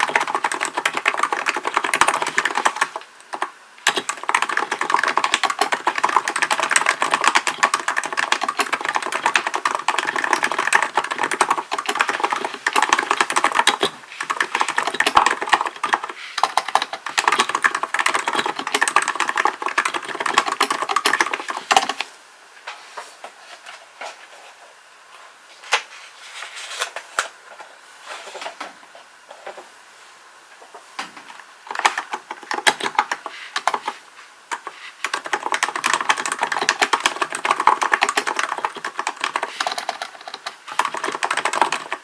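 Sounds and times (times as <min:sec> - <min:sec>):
fast typing on keyboard: 0:00.0 - 0:22.1, 0:31.7 - 0:42.0.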